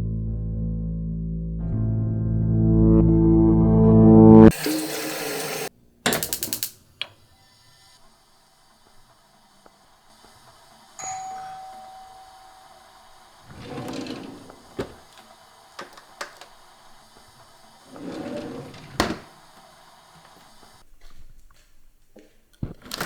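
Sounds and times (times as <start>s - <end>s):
sharp clicks and knocks: 6.0s - 7.2s
doorbell ringing: 11.0s - 13.0s.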